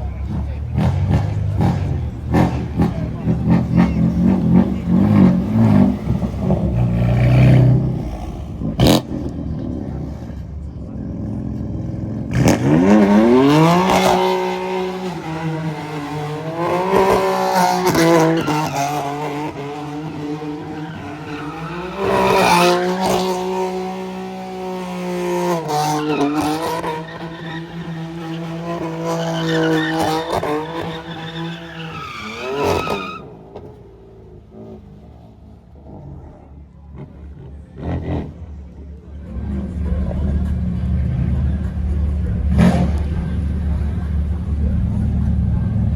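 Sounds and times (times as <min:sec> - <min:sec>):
car engine revving: 0:00.0 - 0:45.9
tyres screeching: 0:12.6 - 0:23.7, 0:25.6 - 0:33.7.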